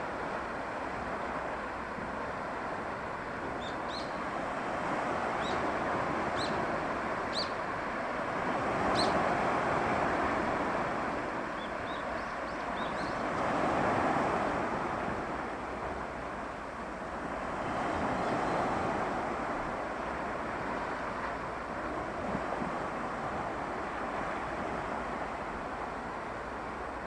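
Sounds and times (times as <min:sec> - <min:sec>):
small waves washing in: 0:13.2 - 0:27.0.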